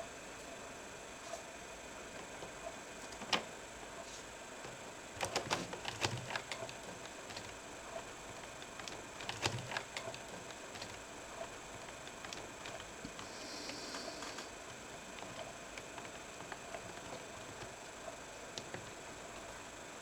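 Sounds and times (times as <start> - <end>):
small laptop parts clicking: 8.6 - 11.0.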